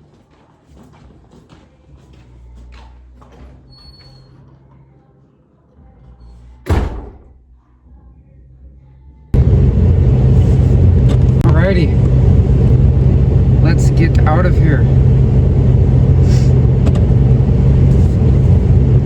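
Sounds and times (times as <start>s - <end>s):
door slamming shut: 6.7s - 7.4s
loud steady rumble: 9.3s - 19.0s.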